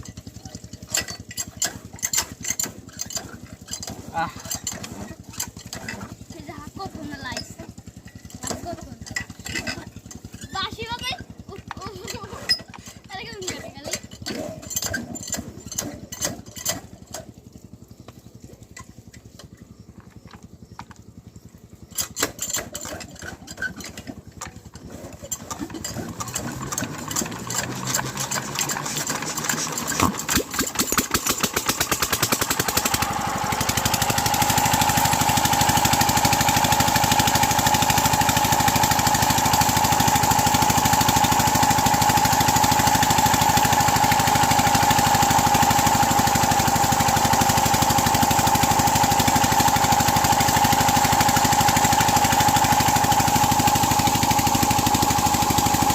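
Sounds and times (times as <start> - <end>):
engine starter clicks: 21.8 - 55.9
diesel engine knocking: 24.2 - 55.9.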